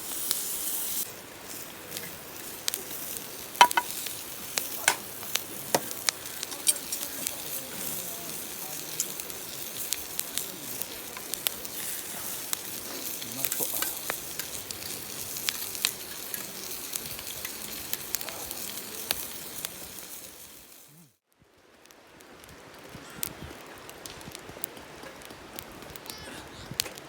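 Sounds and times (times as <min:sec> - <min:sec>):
food sizzling in a pan: 0:00.0 - 0:21.2.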